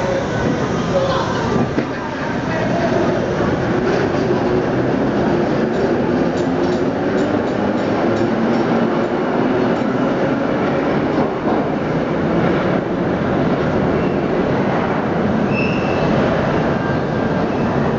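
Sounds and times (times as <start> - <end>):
subway train rumbling: 0.0 - 17.9
high wheel squeal: 15.4 - 16.3.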